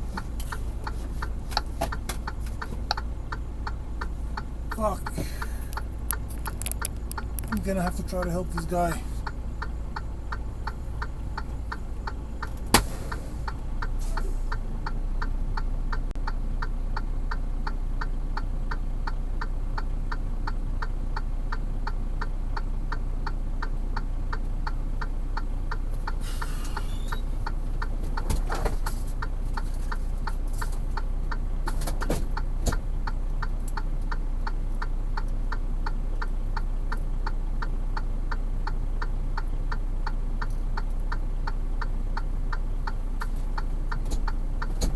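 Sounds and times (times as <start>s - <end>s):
idling engine hum: 0.0s - 44.9s
hazard-light flasher ticking: 0.2s - 13.9s.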